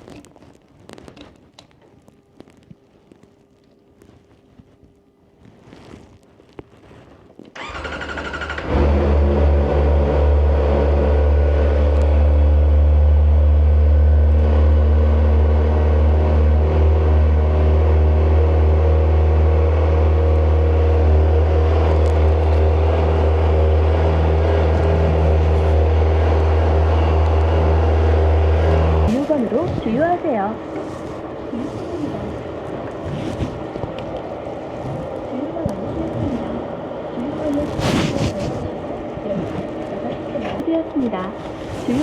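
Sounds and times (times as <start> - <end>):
starter motor cranking: 7.6 - 9.4.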